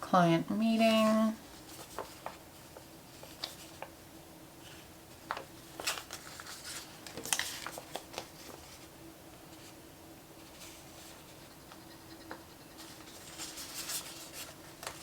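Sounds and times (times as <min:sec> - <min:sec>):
paper rustling and crinkling: 0:00.8 - 0:04.0, 0:04.6 - 0:09.8, 0:12.8 - 0:15.0.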